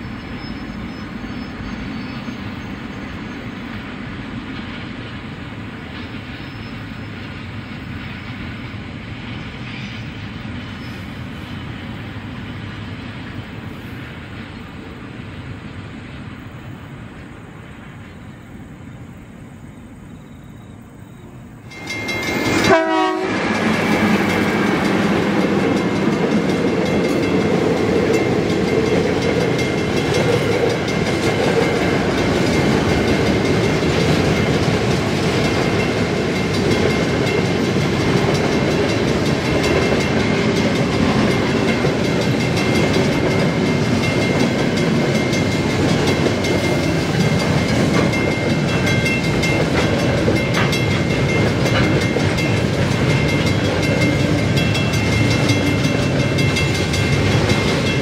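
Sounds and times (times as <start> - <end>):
freight train rumble and clatter: 0.0 - 58.0
steady tones: 21.6 - 58.0.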